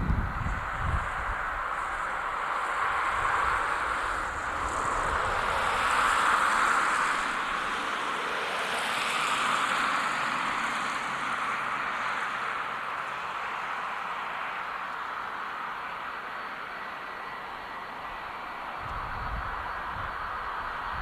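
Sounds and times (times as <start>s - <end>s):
jet engines whining: 15.2s - 21.0s.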